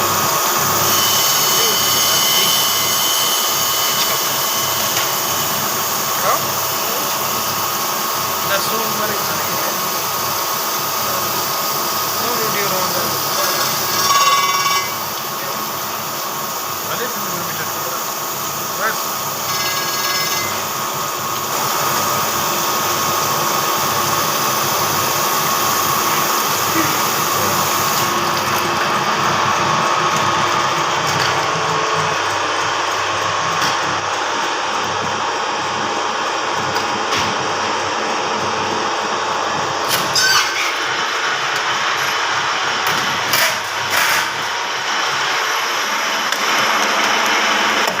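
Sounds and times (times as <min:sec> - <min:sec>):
grinding machine whine: 0:00.0 - 0:48.0
grinding wheel on metal: 0:12.2 - 0:15.6, 0:18.8 - 0:20.8.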